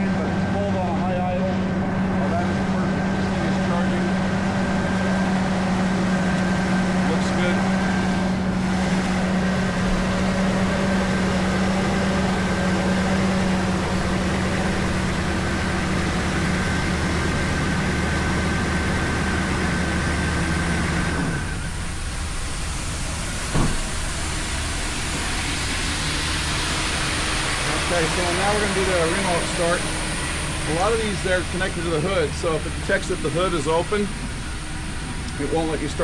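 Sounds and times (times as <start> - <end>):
engine running at high idle: 0.0 - 36.0
short knock: 23.5 - 23.9.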